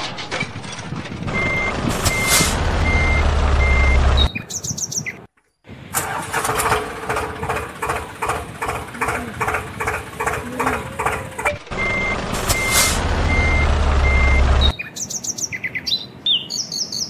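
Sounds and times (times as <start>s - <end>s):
engine noise: 0.0s - 4.4s, 5.7s - 14.7s
low rumble: 0.0s - 4.4s, 7.1s - 14.7s
vehicle reversing alarm beeps: 1.3s - 4.4s, 10.2s - 14.8s
rhythmic pulsing machine: 6.7s - 14.7s.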